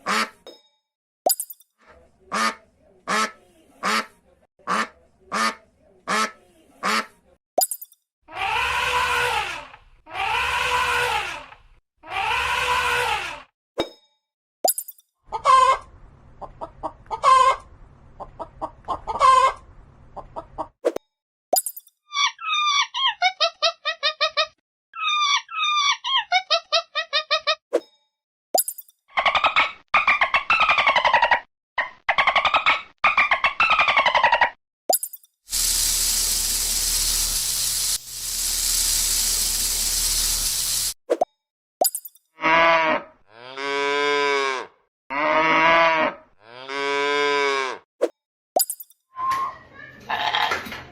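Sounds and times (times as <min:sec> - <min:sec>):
snake hissing: 0:35.5 - 0:41.0.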